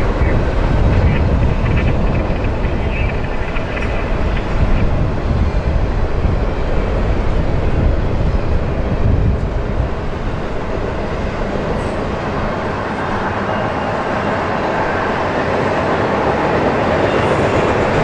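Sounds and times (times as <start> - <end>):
freight train rumbling over bridge: 0.0 - 18.0.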